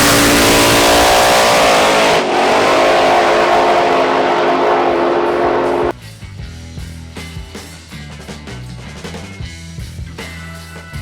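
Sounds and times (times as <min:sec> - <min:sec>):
drag car engine at full throttle: 0:00.0 - 0:05.9.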